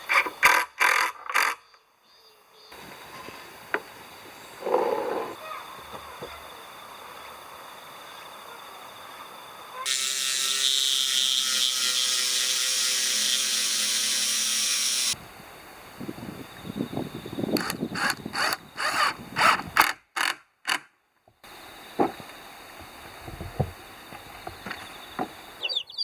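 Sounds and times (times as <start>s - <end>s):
power tool running: 9.8s - 15.2s.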